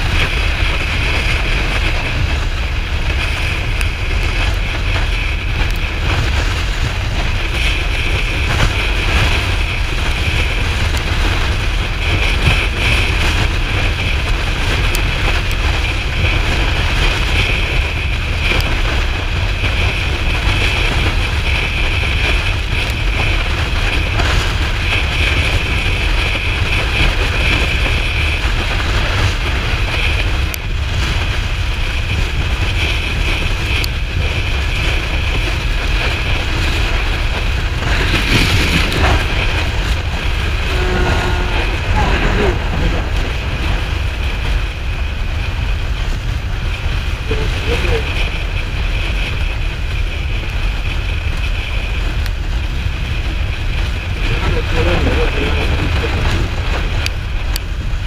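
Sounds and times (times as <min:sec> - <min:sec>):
wind rushing across microphone: 0:00.0 - 0:58.0.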